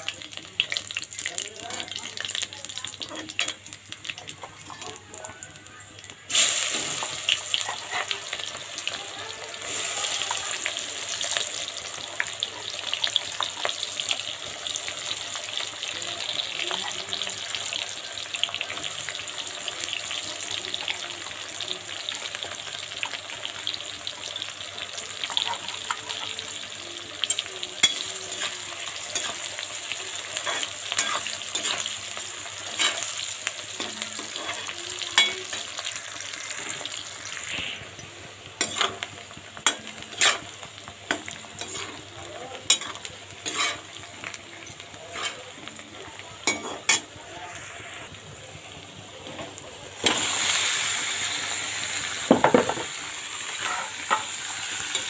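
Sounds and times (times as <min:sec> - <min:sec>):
onions sizzling in hot oil: 0:00.0 - 0:55.0
metal spoon scraping and tapping pan: 0:38.6 - 0:42.0, 0:42.7 - 0:43.8, 0:46.4 - 0:47.1.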